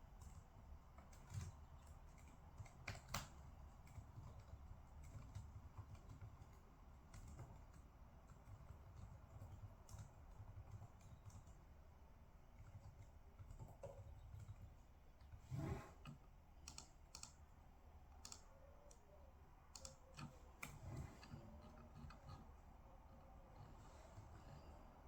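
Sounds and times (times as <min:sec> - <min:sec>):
keyboard typing clicks: 0:01.0 - 0:11.6, 0:16.0 - 0:17.5, 0:18.1 - 0:19.1, 0:19.7 - 0:22.4.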